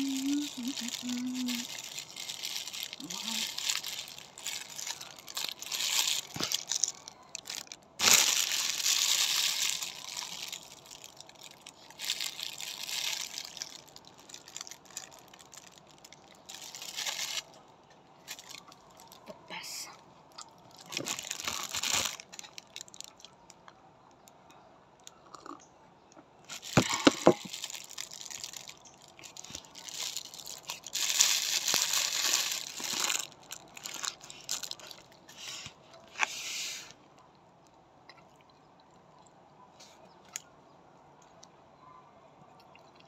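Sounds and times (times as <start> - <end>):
person chewing bread: 0.0 - 17.6, 25.1 - 25.6, 32.6 - 35.3
plastic bag crinkling: 0.0 - 19.6, 20.3 - 23.6, 26.5 - 36.3.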